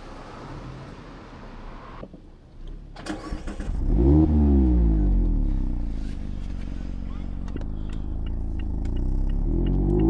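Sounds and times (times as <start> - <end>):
car engine cranking and starting: 2.8 - 4.7.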